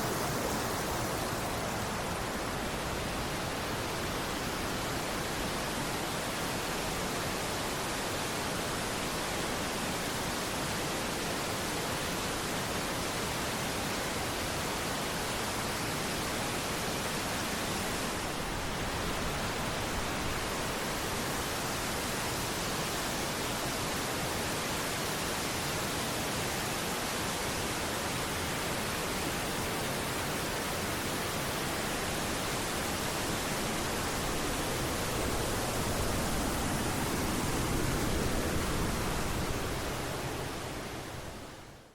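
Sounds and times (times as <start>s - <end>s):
waterfall rushing: 26.2s - 41.5s.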